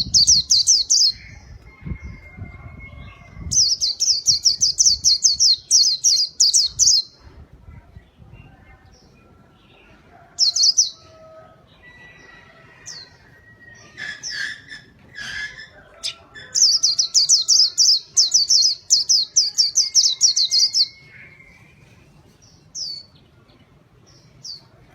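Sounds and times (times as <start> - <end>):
small bird singing high chirps: 0.0 - 7.2, 12.9 - 22.0.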